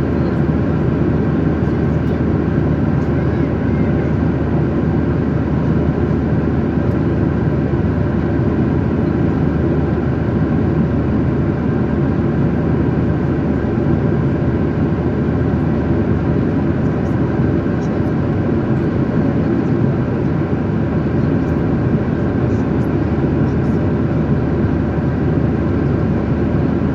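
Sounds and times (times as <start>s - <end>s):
jet engine and airflow in cabin: 0.0s - 26.9s.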